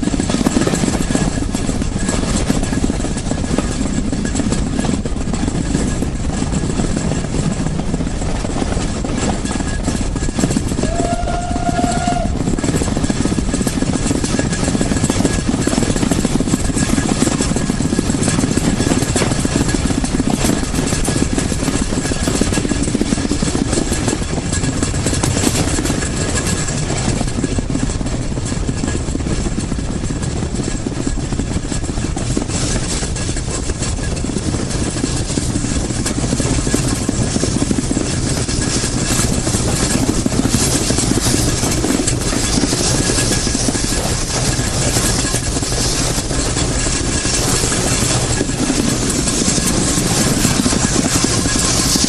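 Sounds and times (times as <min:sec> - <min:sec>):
steam train rumbling and hissing: 0:00.0 - 0:52.0.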